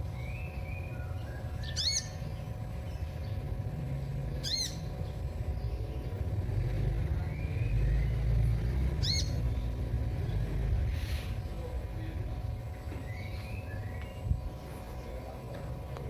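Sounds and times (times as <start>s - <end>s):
sunbird chirps: 0.0s - 10.4s, 12.9s - 14.7s
steady low rumble: 0.0s - 16.0s.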